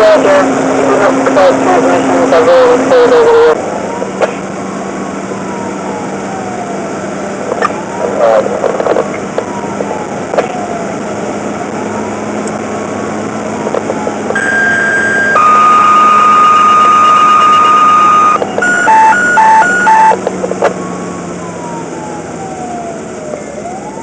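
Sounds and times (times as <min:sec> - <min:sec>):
radio dispatch tones: 0:00.0 - 0:04.6, 0:07.4 - 0:10.6, 0:13.6 - 0:20.8
siren wailing: 0:00.0 - 0:24.0
alternating high-low alert tone: 0:14.4 - 0:20.2.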